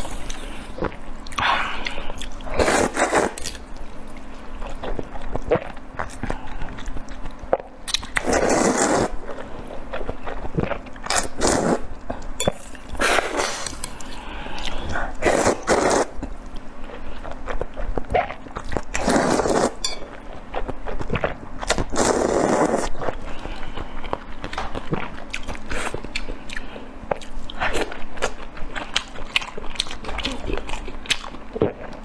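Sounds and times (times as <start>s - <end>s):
chewing with wet clicks: 3.4s - 8.3s, 24.0s - 32.0s.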